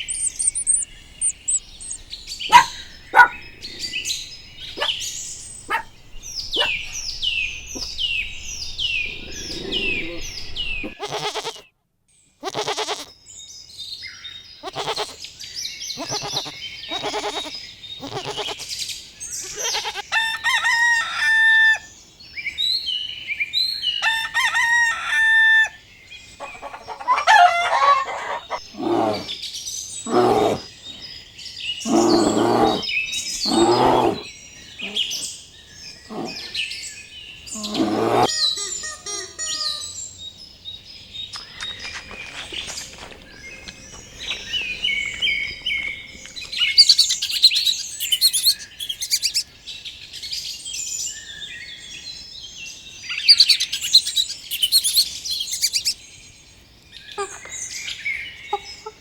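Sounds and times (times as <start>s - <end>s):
chickens calling: 0.0s - 11.6s, 14.6s - 15.2s, 16.0s - 18.7s, 19.4s - 21.9s, 24.0s - 25.8s, 26.4s - 29.4s, 30.1s - 31.0s, 31.9s - 35.3s, 37.6s - 40.0s, 41.4s - 49.5s, 53.2s - 56.0s
rooster crowing: 19.9s - 21.9s, 24.0s - 25.8s, 26.4s - 29.3s.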